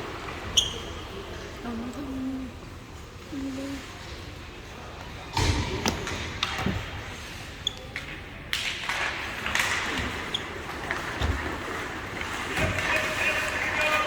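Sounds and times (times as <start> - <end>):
thud: 5.3 - 6.9
hockey sticks and puck clacking: 7.8 - 11.2, 12.2 - 14.0
skates scraping ice: 8.8 - 14.0.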